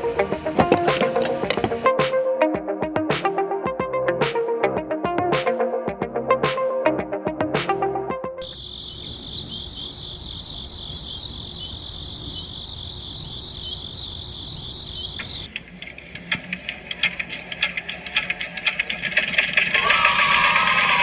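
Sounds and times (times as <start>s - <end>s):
high insect-like chirring: 8.4s - 15.5s
fast mechanical ticking: 14.9s - 21.0s.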